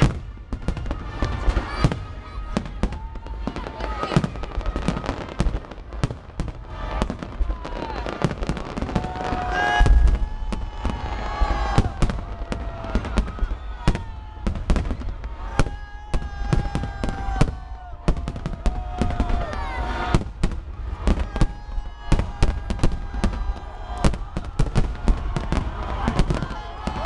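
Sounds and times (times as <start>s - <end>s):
fireworks booms and crackling bangs: 0.0s - 27.0s.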